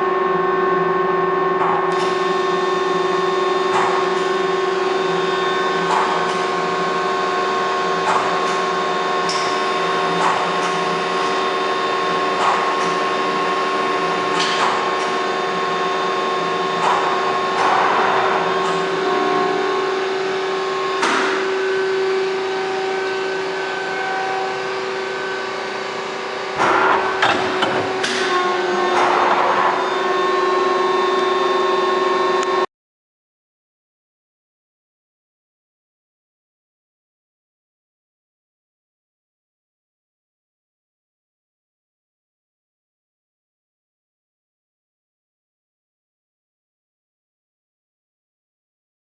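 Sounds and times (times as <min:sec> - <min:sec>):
lathe whine and hum: 0:00.0 - 0:32.7.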